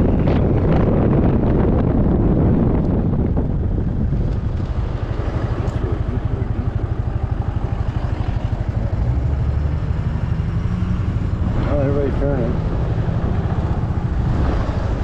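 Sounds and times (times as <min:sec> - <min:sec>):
wind buffeting microphone: 0:00.0 - 0:15.0
scooter engine running: 0:03.6 - 0:09.5.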